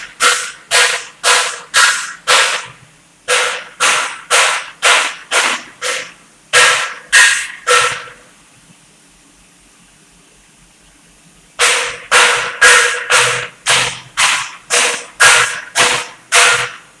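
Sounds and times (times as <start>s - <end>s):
hammer striking metal: 0.0s - 2.7s, 3.3s - 8.2s, 11.6s - 16.8s.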